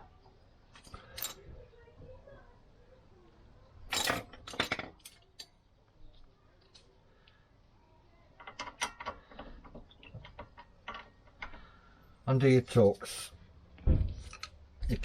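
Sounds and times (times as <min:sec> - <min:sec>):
metal tools clattering: 0:03.9 - 0:05.2.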